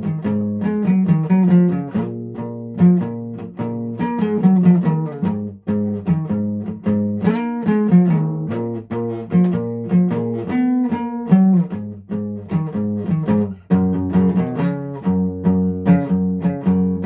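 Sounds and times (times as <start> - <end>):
guitar picking notes and chords: 0.0 - 17.0.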